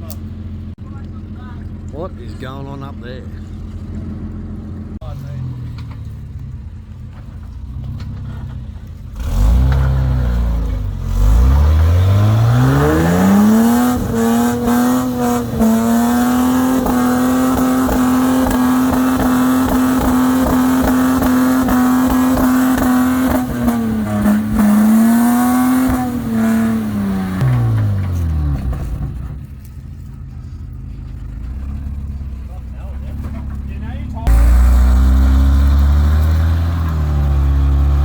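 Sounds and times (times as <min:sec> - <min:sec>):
vehicle engine revving hard: 0:09.2 - 0:29.0, 0:34.2 - 0:38.0.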